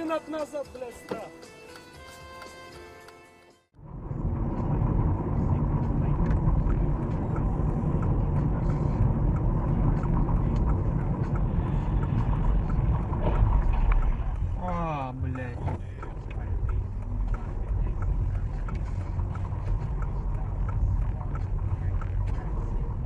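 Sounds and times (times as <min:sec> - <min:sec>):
music: 0:00.0 - 0:03.8, 0:06.2 - 0:23.0
car engine and road rumble: 0:03.7 - 0:23.0
faint ticks: 0:05.8 - 0:23.0.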